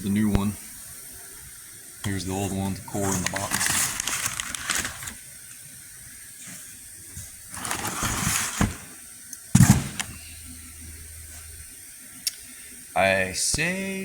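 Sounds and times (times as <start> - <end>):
cardboard box rustling: 2.9 - 5.2, 7.2 - 8.9
faint low hum: 7.0 - 14.0
loud clunk: 9.6 - 10.1.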